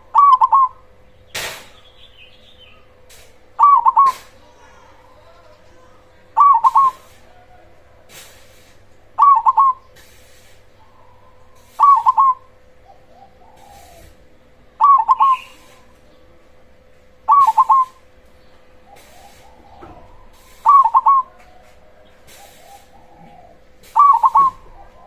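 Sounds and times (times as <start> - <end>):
dove cooing: 0.0 - 1.0, 3.6 - 10.0, 10.7 - 16.1, 17.2 - 18.1, 18.7 - 25.0
faint steady hum: 0.0 - 25.0.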